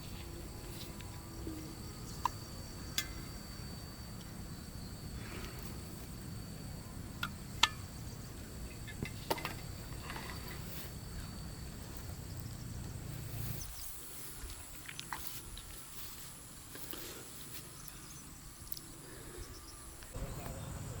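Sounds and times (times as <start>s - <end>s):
low steady rumble: 0.0s - 13.8s
insects droning: 0.0s - 21.0s.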